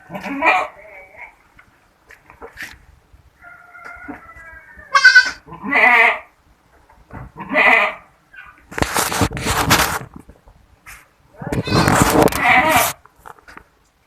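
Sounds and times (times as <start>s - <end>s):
goats bleating: 0.0s - 1.3s, 4.1s - 6.3s, 7.4s - 8.1s, 11.4s - 13.0s
broad rustling noise: 8.6s - 14.0s.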